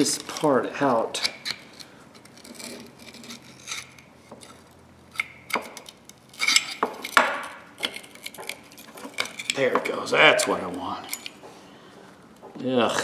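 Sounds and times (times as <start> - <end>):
locking pliers clinking on tools: 11.0 - 11.4.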